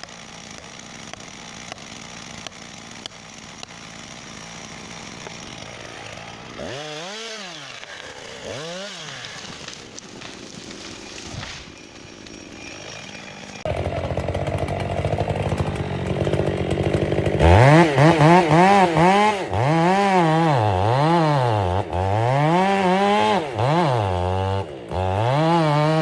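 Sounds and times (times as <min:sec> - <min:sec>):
chainsaw engine revving: 0:00.0 - 0:26.0.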